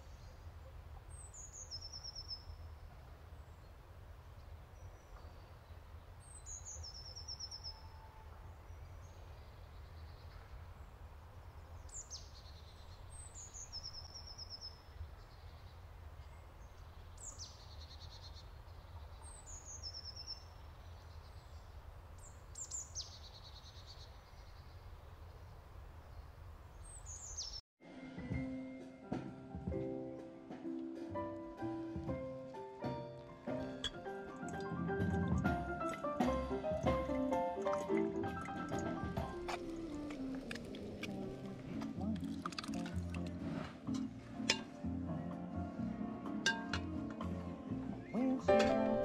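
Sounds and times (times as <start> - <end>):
songbird singing with trill: 1.1 - 2.7, 4.4 - 10.9, 11.6 - 24.9, 26.1 - 27.6, 44.0 - 49.0.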